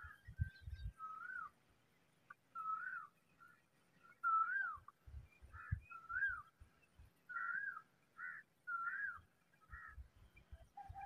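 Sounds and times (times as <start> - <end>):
bird whistled calls: 0.6 - 1.5, 2.6 - 3.1, 4.2 - 4.9, 5.6 - 6.5.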